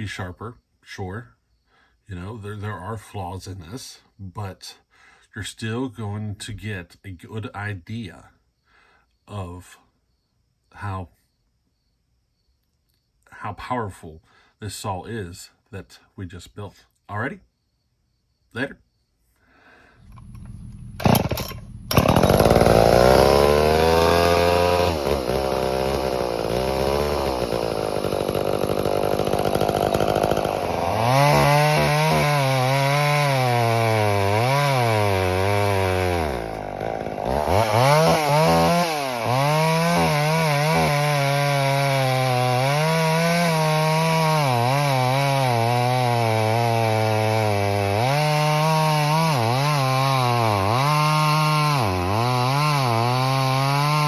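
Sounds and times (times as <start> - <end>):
chainsaw cutting through wood: 20.0 - 54.0.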